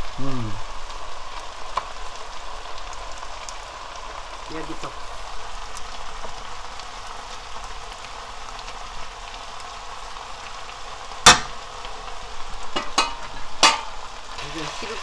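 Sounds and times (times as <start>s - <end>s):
greens sizzling in a frying pan: 0.0s - 15.0s
spoon knocking against pan: 12.8s - 14.0s.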